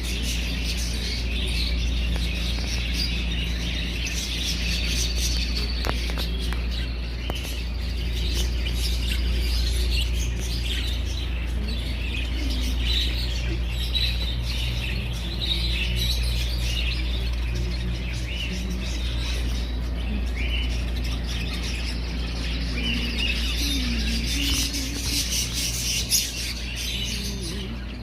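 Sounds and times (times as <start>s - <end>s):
caged birds chirping: 0.0s - 28.0s
steady low hum: 0.0s - 28.0s.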